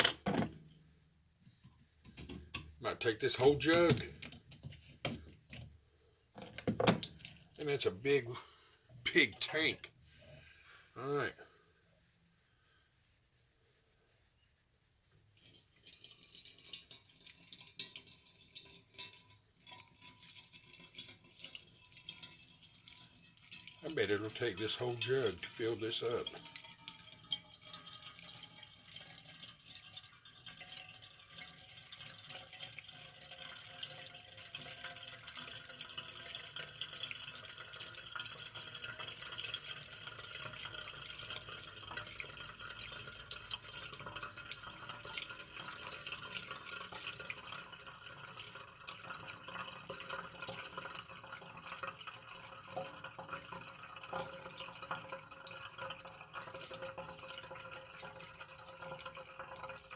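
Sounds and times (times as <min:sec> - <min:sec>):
oil pouring through a funnel: 0:00.0 - 0:13.1, 0:15.1 - 0:59.9.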